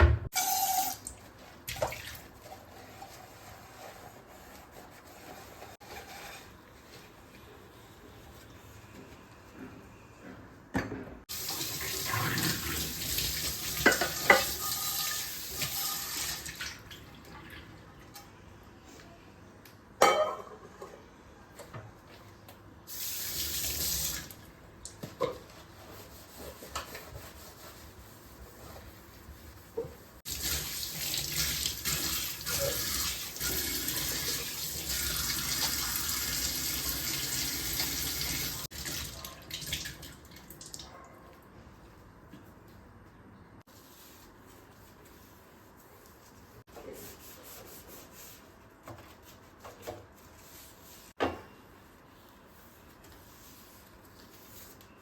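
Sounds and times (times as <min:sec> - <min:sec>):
water running from a tap: 0:11.3 - 0:17.0, 0:22.9 - 0:24.4, 0:30.3 - 0:40.9.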